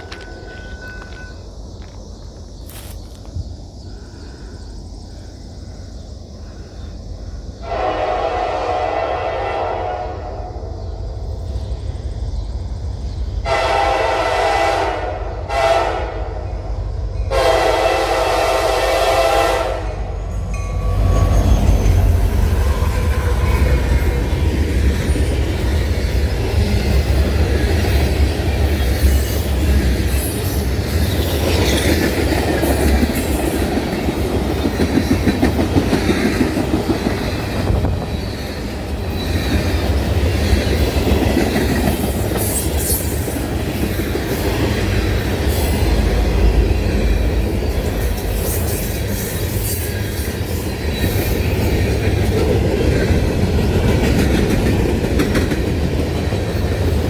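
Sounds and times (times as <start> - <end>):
train wheels clattering over rails: 20.8 - 57.0.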